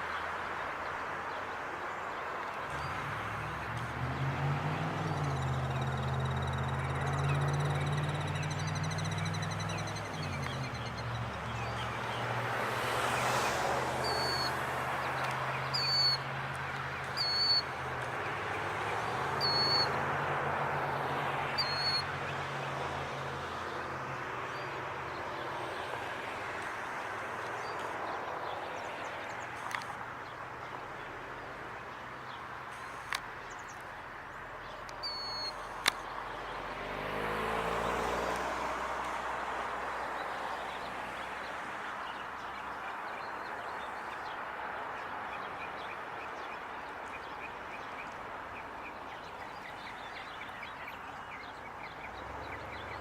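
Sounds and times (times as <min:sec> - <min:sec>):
low engine hum: 0:02.7 - 0:24.1
shrill bird calls: 0:14.0 - 0:14.6, 0:15.6 - 0:16.3, 0:17.1 - 0:17.8, 0:19.4 - 0:20.0, 0:21.6 - 0:22.1, 0:35.0 - 0:35.8.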